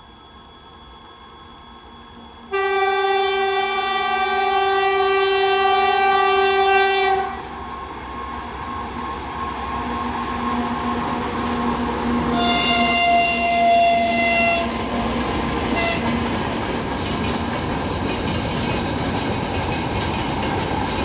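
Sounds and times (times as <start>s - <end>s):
train approaching: 0.0s - 21.0s
train horn blast: 2.5s - 7.6s, 12.3s - 14.9s, 15.7s - 16.3s.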